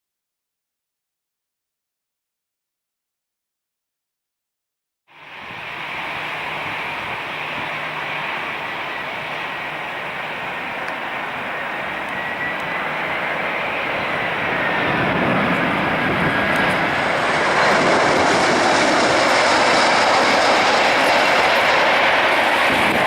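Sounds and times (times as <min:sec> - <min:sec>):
faint high whine: 0:05.1 - 0:23.0
jet engine roar: 0:05.1 - 0:23.0.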